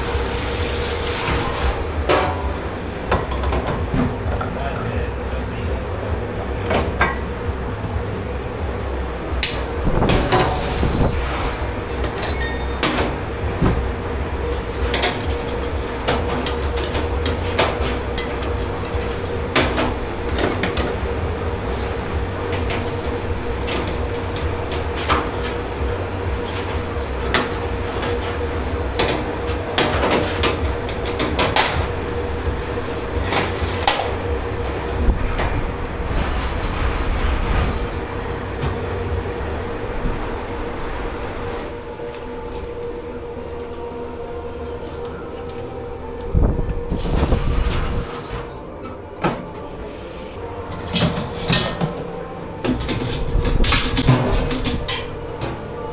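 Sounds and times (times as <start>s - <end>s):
low machine hum: 0.0s - 55.9s
dishes and pots clanking: 1.2s - 4.9s, 6.7s - 7.3s, 9.4s - 10.7s, 12.0s - 13.2s, 14.9s - 21.0s, 50.7s - 55.6s.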